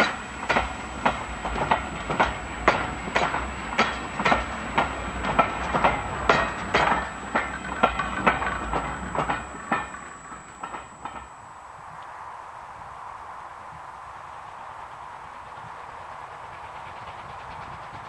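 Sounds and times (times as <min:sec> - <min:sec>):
train wheels clacking over rail joints: 0:00.0 - 0:11.6, 0:15.5 - 0:18.0
train rumble: 0:00.0 - 0:18.0.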